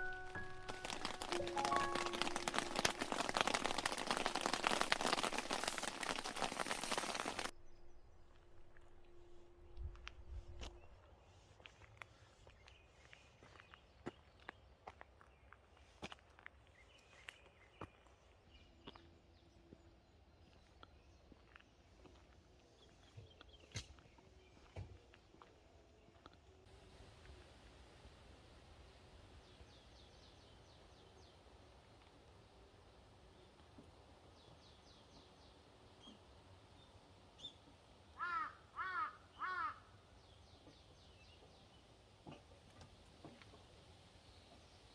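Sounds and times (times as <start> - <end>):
crow cawing: 38.2 - 39.9.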